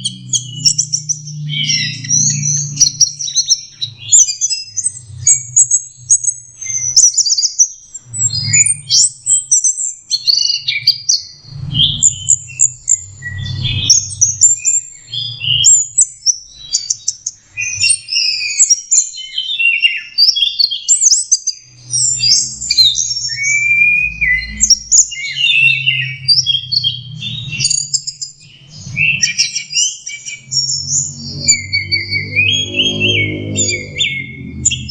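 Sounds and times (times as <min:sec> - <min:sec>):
low hum: 0:00.0 - 0:06.6, 0:11.4 - 0:15.4, 0:30.3 - 0:34.9
bird singing chirps and whistles: 0:00.0 - 0:34.9.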